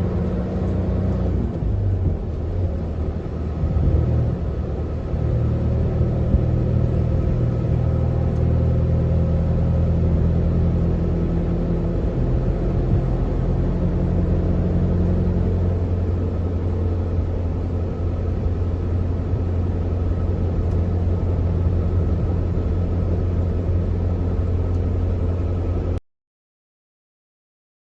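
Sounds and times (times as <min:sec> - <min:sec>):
truck diesel engine running: 0:00.0 - 0:26.0.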